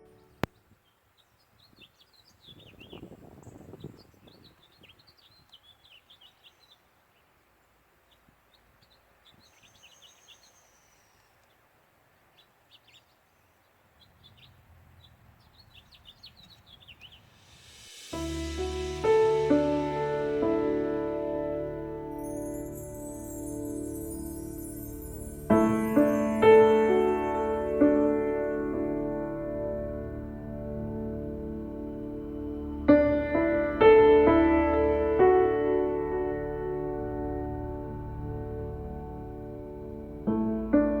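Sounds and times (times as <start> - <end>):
small birds chirping: 0.0 - 20.7, 22.1 - 29.2.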